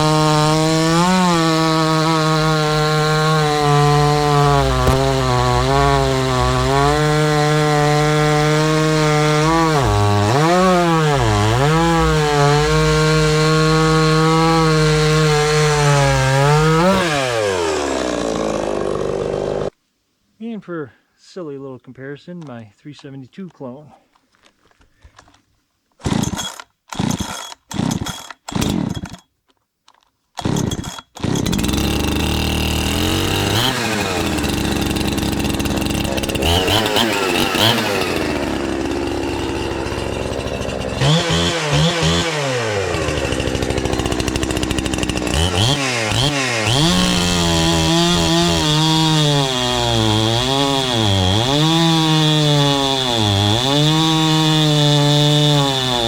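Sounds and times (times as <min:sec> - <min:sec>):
chainsaw engine revving: 0:00.0 - 0:19.7, 0:26.0 - 0:29.2, 0:30.4 - 0:56.0
chainsaw starter pulls: 0:01.5 - 0:07.0, 0:26.0 - 0:52.8.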